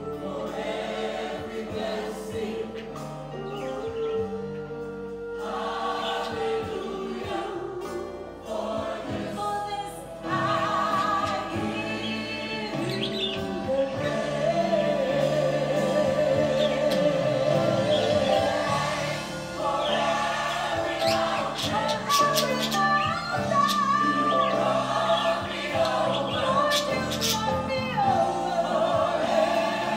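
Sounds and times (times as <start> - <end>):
gospel choir singing: 0.0 - 29.9.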